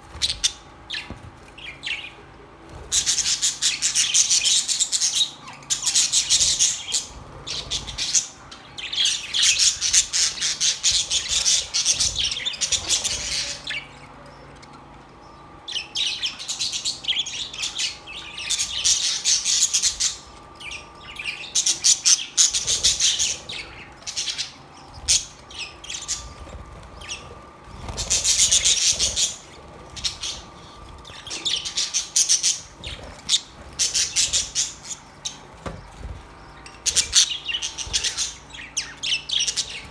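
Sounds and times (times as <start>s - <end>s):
budgerigars chirping and warbling: 0.0s - 39.9s.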